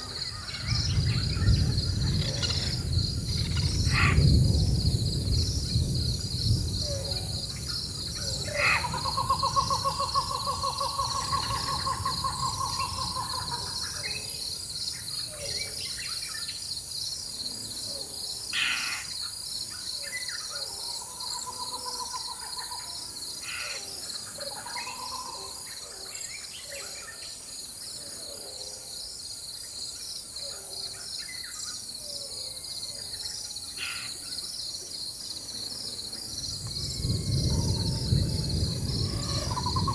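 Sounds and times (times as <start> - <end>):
insects chorus: 0.0 - 39.9
distant thunder rumble: 0.4 - 14.7, 36.3 - 39.9.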